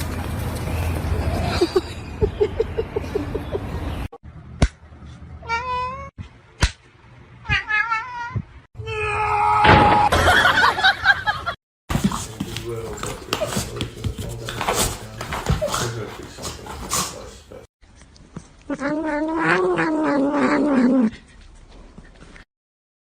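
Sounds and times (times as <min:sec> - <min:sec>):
cat meowing: 0:05.4 - 0:06.1.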